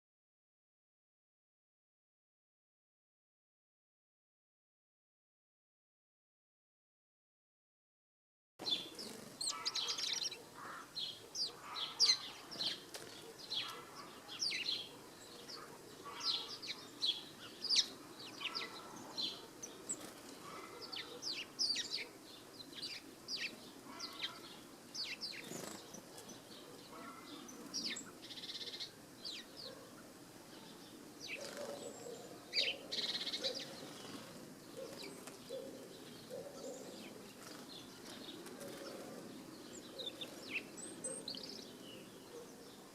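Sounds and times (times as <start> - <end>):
small birds chirping: 8.6 - 42.9.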